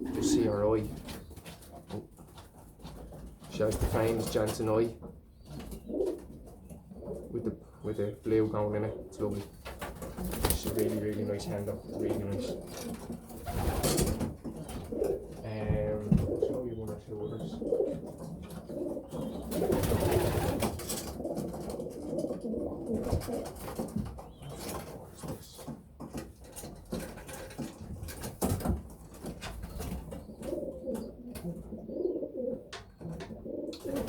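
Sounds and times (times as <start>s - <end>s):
pigeons cooing: 0.0s - 34.0s.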